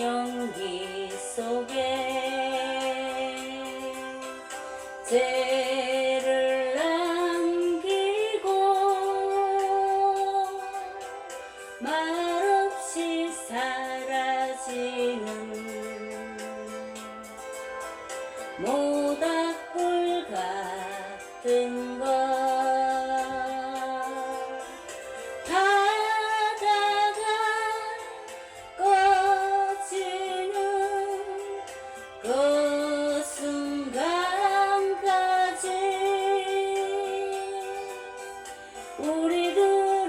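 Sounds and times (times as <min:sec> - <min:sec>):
woman singing a slow ballad: 0:00.0 - 0:17.5, 0:18.4 - 0:40.0
soft backing music: 0:00.0 - 0:40.0.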